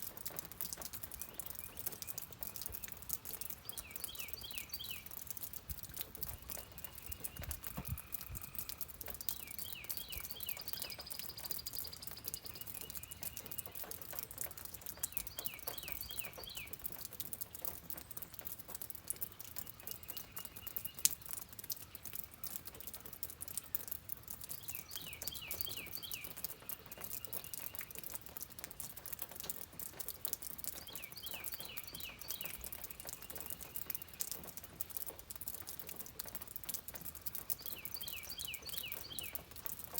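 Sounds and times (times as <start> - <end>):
rain pattering and dripping: 0.0 - 39.9.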